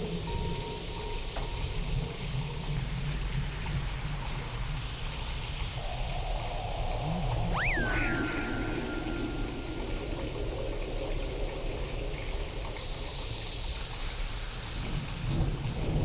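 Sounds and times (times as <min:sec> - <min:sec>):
processed steady rain: 0:00.0 - 0:16.0
faint electronic tone: 0:07.2 - 0:11.0.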